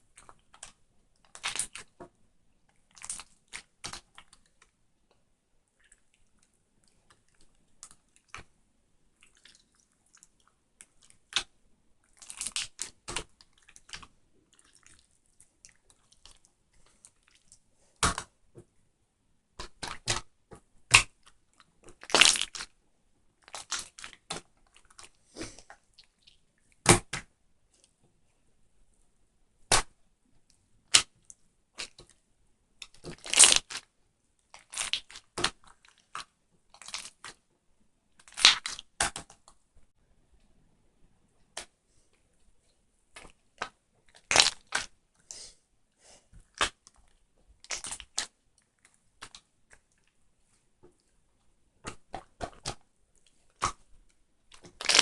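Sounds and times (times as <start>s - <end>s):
sharp crunches and cracks: 22.0s - 22.7s, 33.0s - 33.8s, 38.2s - 39.4s, 43.2s - 44.9s, 47.6s - 48.3s, 54.5s - 55.0s.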